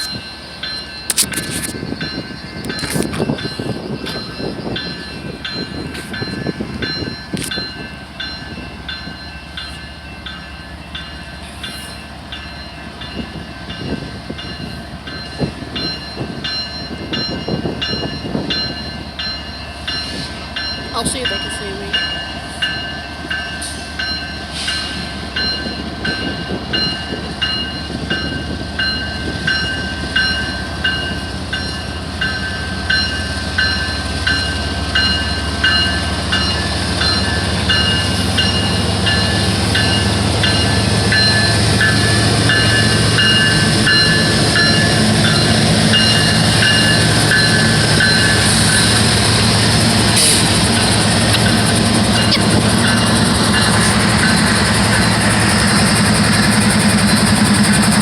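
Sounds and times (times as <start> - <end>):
crossing bell ringing: 0.0 - 58.0
train rumble: 0.0 - 58.0.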